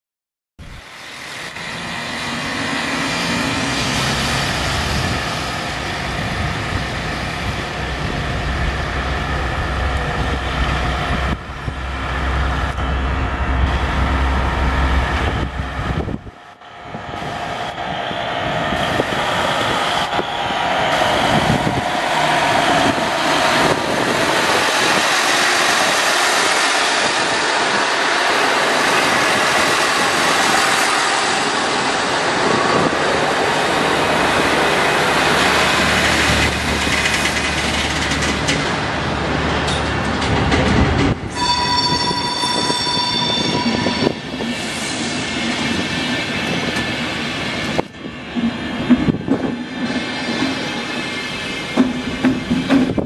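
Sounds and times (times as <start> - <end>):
diesel railcar engine running: 0.6 - 53.0
wheels clattering on rails: 35.5 - 44.6, 45.6 - 53.0
steady high tone: 41.3 - 45.8.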